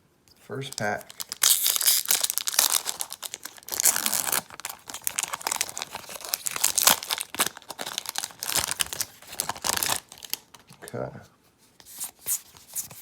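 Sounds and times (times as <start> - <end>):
foil wrapper tearing and crinkling: 0.7 - 10.6.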